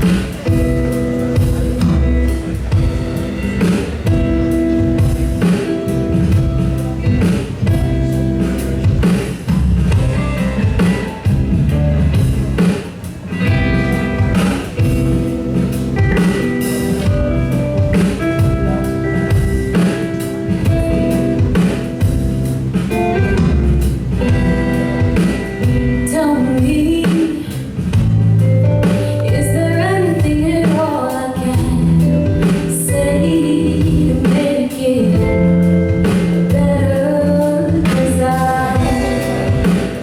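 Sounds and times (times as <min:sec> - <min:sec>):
drum kit beat: 0:00.0 - 0:40.0
guitar chords: 0:00.0 - 0:40.0.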